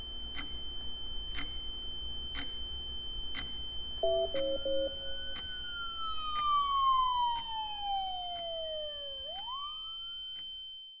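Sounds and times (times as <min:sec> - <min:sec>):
steady high whine: 0:00.0 - 0:10.4
sharp ticks: 0:00.3 - 0:00.6, 0:01.3 - 0:02.7, 0:03.3 - 0:05.6
siren-like electronic tone: 0:04.0 - 0:10.4.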